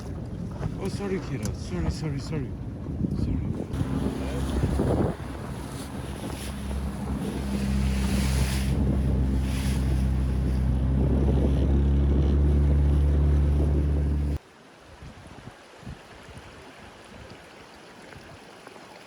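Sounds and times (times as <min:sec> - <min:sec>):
outboard motor running: 0:00.0 - 0:14.4
wind buffeting microphone: 0:00.0 - 0:14.4
wave spray washing: 0:03.6 - 0:14.4.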